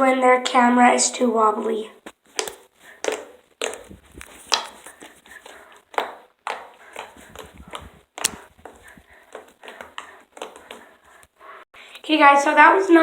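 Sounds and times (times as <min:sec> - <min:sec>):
slime squishing and popping: 0:02.3 - 0:04.9.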